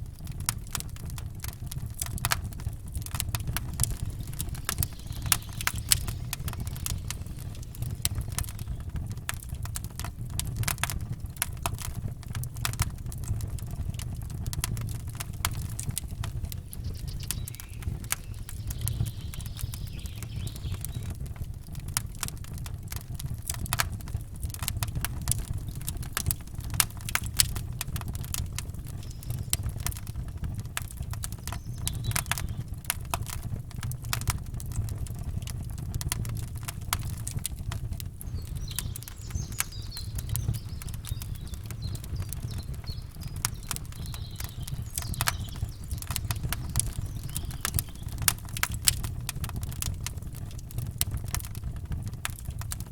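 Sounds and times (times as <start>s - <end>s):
campfire crackling and popping: 0.0s - 52.9s
faint bird chirps: 3.5s - 9.1s, 16.4s - 21.2s, 28.7s - 30.1s, 31.5s - 32.7s, 38.2s - 48.6s.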